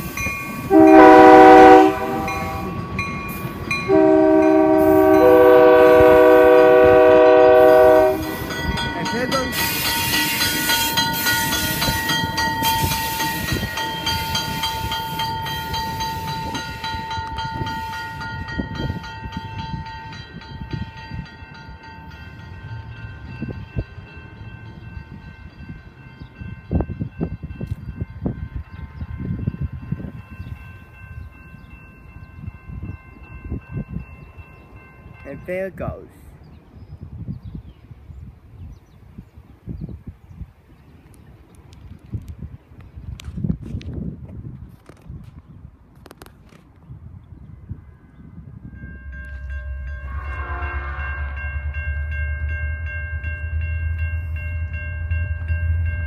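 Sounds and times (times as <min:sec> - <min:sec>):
train engine and wheels on rails: 0:00.0 - 0:56.0
locomotive horn blast: 0:00.7 - 0:03.0, 0:03.9 - 0:08.5, 0:49.8 - 0:51.7.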